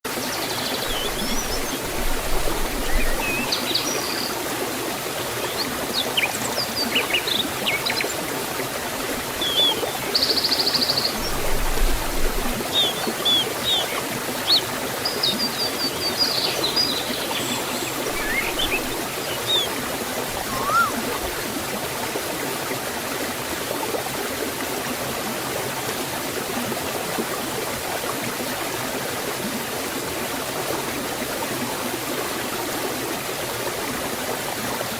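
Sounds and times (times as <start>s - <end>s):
waterfall rushing: 0.2s - 22.2s
small birds chirping: 12.5s - 19.8s, 20.4s - 21.2s.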